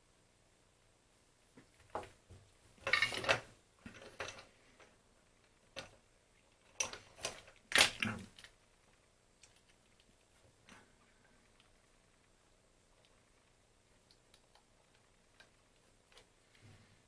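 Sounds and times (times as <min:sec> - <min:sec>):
small parts clicking and scraping: 0:02.8 - 0:11.8.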